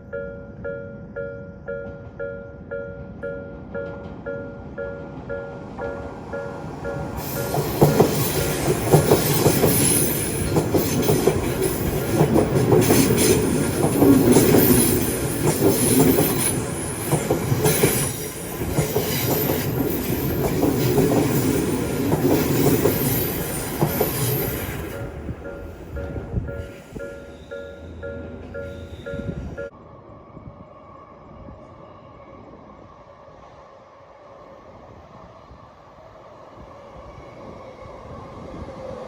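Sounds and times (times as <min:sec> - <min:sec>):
train wheels rumbling: 0:00.0 - 0:29.8
wheels clacking over rail joints: 0:01.8 - 0:29.7
high wheel squeal: 0:06.3 - 0:29.7.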